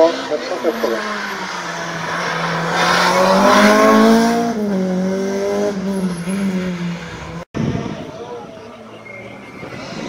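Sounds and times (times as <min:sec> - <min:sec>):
racing car engine revving: 0:00.0 - 0:07.5.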